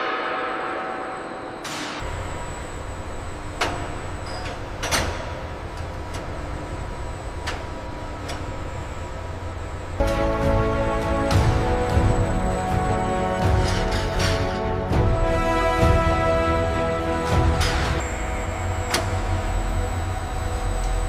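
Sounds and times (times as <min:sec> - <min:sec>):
low mechanical rumble: 0:02.0 - 0:21.0
music: 0:10.0 - 0:21.0.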